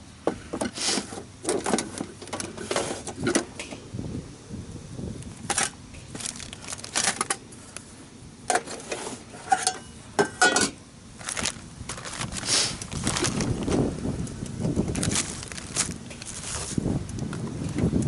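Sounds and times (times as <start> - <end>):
gear rustling and clattering: 5.4 - 7.4, 11.2 - 13.9, 14.6 - 17.8.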